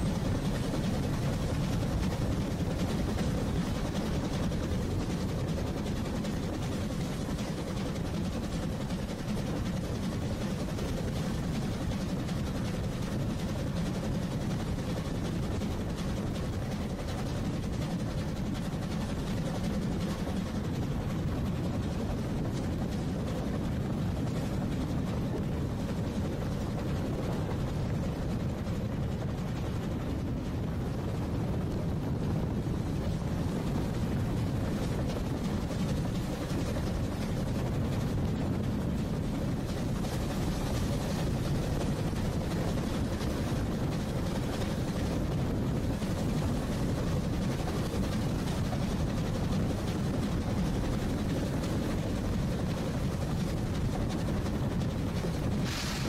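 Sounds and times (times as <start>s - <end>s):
train wheels rumbling on track: 55.6s - 56.0s.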